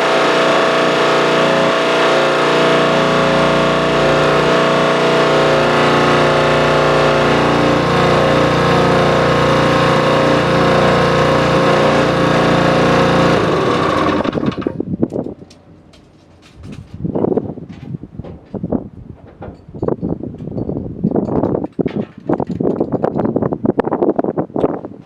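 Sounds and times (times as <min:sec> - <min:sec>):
engine running and shutting off: 0:00.0 - 0:15.6.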